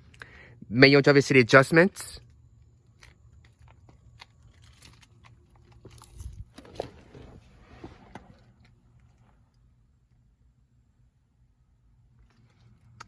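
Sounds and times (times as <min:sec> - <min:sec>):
seat adjusters clicking and rustling: 0:03.4 - 0:08.8.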